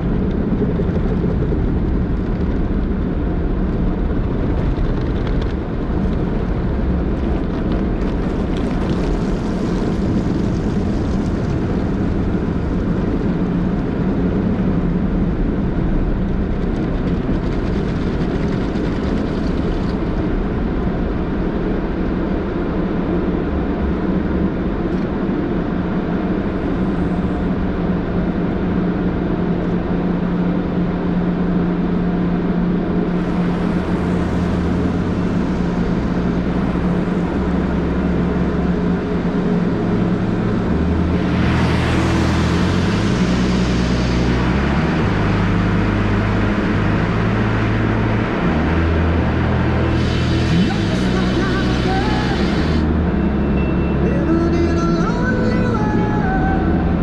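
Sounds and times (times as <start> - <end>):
car wash rumble: 0.0 - 57.0.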